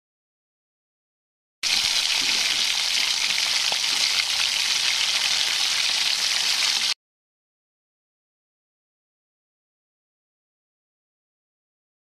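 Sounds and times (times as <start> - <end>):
food sizzling in hot oil: 1.6 - 7.0.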